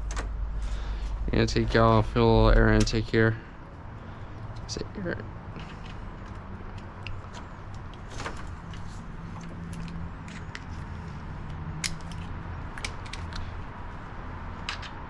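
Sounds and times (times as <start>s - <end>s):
steady low hum: 0.0s - 14.7s
clicks and knocks of plastic parts: 11.8s - 13.6s, 14.6s - 15.0s.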